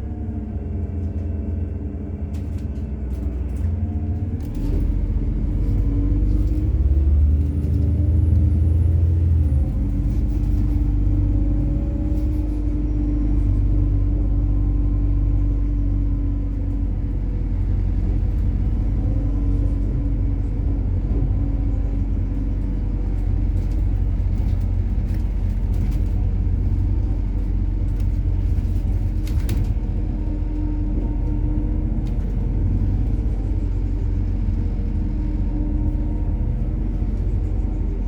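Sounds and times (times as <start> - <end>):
bus engine and road rumble: 0.0 - 38.0
light rattles and clicks: 2.3 - 8.6, 9.2 - 12.8, 22.3 - 38.0.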